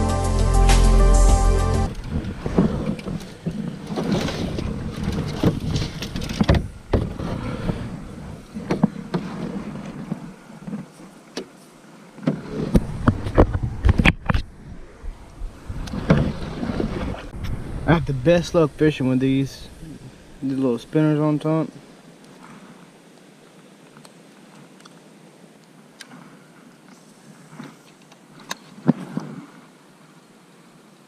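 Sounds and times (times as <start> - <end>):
water and wind hiss: 1.8 - 31.0
paddle knocking canoe hull: 1.9 - 11.6.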